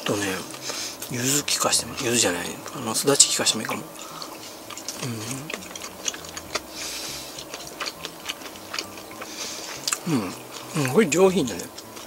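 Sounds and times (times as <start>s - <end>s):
person chewing food: 0.4s - 12.0s
person humming mm: 3.7s - 11.0s
wet mouth clicks: 4.0s - 10.6s.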